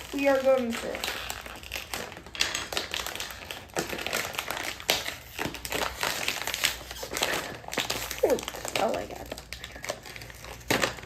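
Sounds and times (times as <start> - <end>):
snack bag crinkling: 0.0 - 11.0.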